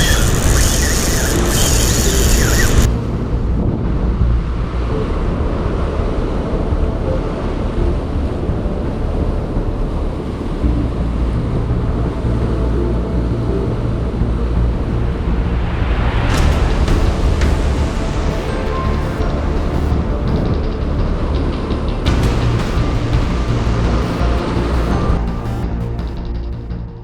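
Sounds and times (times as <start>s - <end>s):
ocean surf: 0.0s - 14.2s.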